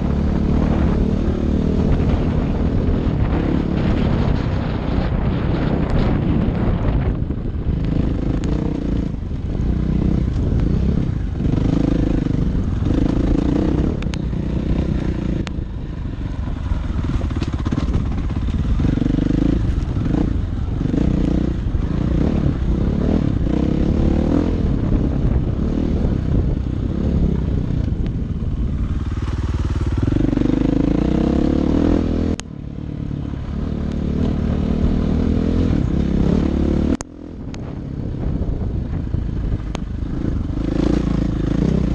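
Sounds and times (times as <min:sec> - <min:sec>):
dirt bike engine revving: 0:00.0 - 0:07.0, 0:07.9 - 0:27.6, 0:28.5 - 0:32.4, 0:40.0 - 0:41.9
clatter: 0:16.9 - 0:20.3.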